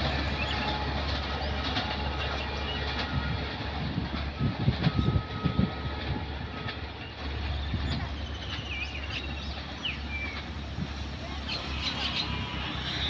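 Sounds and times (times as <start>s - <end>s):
train rumble: 0.0s - 13.0s
train wheels knocking on rail joints: 0.0s - 13.0s
birds chirping: 6.9s - 13.0s.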